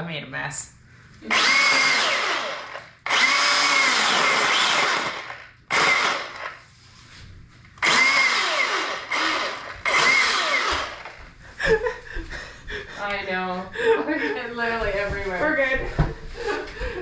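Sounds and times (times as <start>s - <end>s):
power drill whining: 1.2s - 6.6s, 7.8s - 11.2s.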